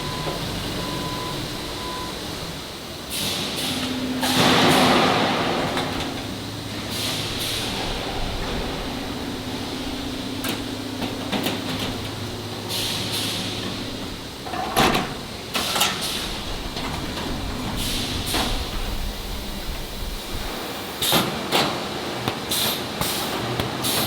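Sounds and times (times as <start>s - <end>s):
factory machinery hum: 0.0s - 24.0s
hiss bursts: 3.0s - 14.5s, 15.2s - 21.4s.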